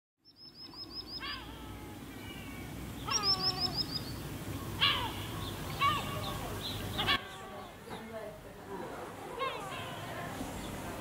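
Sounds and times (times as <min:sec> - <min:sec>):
high falling bird chirps: 0:00.2 - 0:07.8
low background noise: 0:00.2 - 0:11.0
low downward-sliding bird calls: 0:00.4 - 0:08.0.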